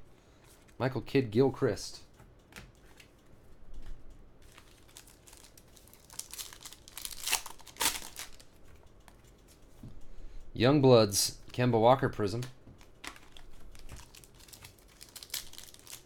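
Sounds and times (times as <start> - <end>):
wrapper tearing and crinkling: 4.5 - 8.5, 13.0 - 16.0.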